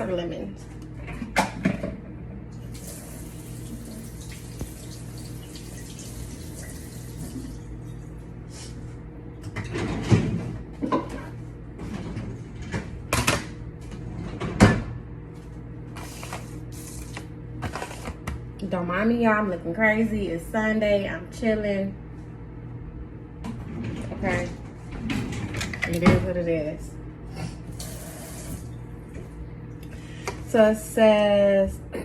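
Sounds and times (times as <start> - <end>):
kitchen tap running: 2.6 - 7.8, 27.7 - 28.7.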